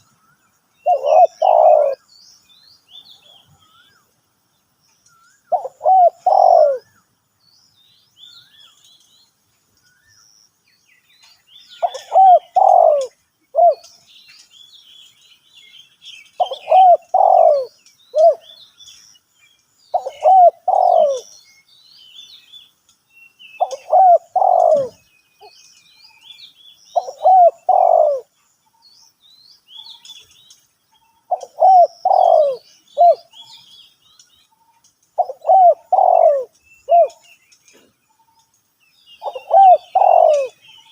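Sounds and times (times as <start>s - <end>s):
small birds chirping: 0.0s - 40.9s
dove cooing: 0.8s - 2.0s, 5.5s - 7.0s, 11.8s - 13.9s, 16.4s - 18.6s, 19.9s - 21.4s, 23.6s - 25.0s, 27.0s - 28.3s, 31.3s - 33.5s, 35.2s - 37.3s, 39.2s - 40.6s.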